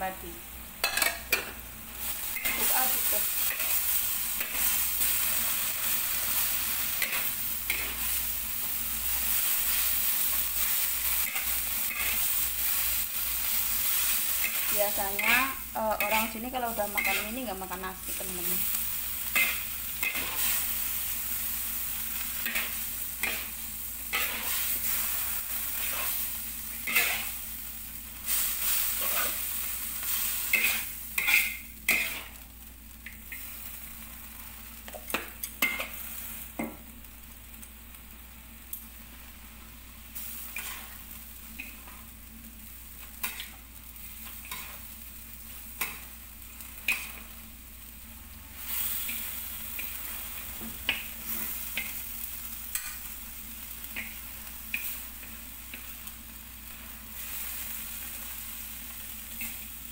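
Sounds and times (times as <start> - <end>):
noodles sizzling in a wok: 0.0 - 59.9
metal spatula scraping wok: 9.3 - 17.7, 19.3 - 20.8, 22.2 - 27.4, 28.3 - 32.4, 40.5 - 41.0.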